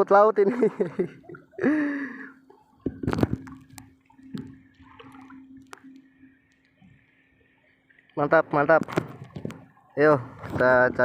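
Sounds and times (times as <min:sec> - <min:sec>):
faint steady hum: 0:00.6 - 0:08.6
water sloshing and splashing: 0:00.6 - 0:11.0.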